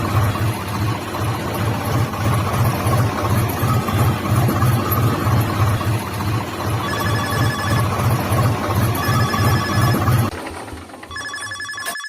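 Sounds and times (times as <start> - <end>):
phone ringtone beeping: 6.8 - 8.1, 9.0 - 10.3, 11.1 - 12.0.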